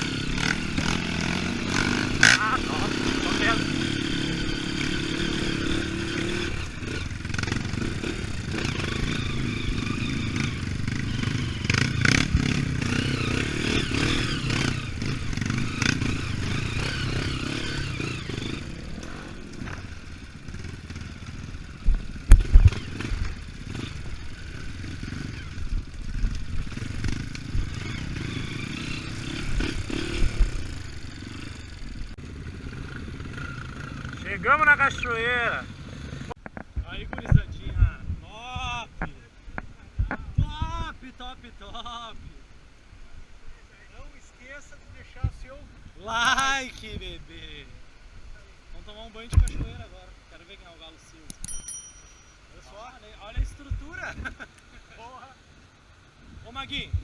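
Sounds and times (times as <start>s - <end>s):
dirt bike engine running: 0.0s - 34.4s, 51.3s - 52.4s.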